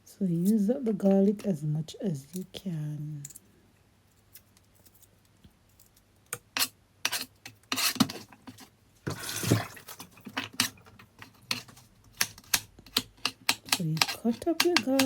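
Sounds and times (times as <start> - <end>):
knife scraping on board: 6.4 - 15.0.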